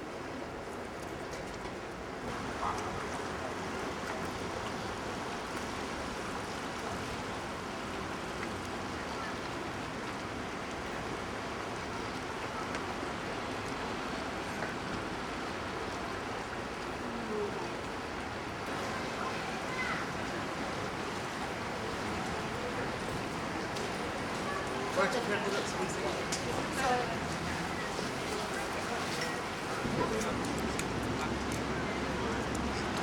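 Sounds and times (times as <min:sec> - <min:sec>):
river water rushing: 0:10.5 - 0:33.0.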